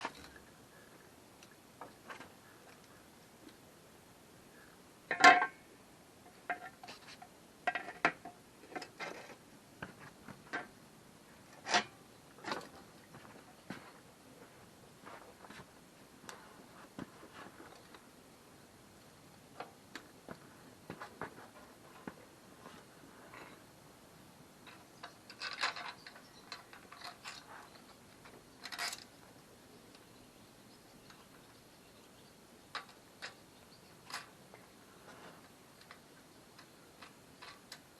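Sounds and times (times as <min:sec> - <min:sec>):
hard objects clicking and rattling: 0:24.7 - 0:27.9.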